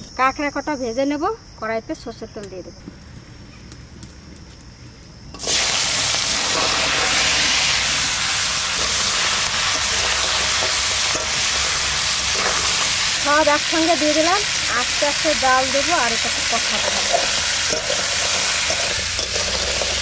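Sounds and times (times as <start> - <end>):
crab sizzling in hot oil: 5.3 - 20.0.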